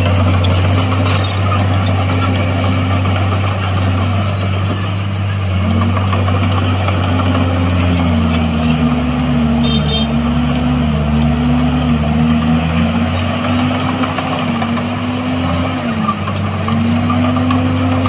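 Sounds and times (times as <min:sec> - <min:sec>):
bulldozer diesel engine droning: 0:00.0 - 0:18.0.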